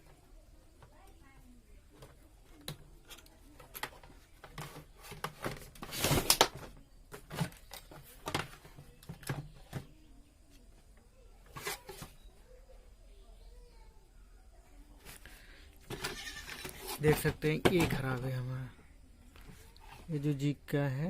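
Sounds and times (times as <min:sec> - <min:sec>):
scraping rustle: 0:03.9 - 0:06.4, 0:15.0 - 0:17.3.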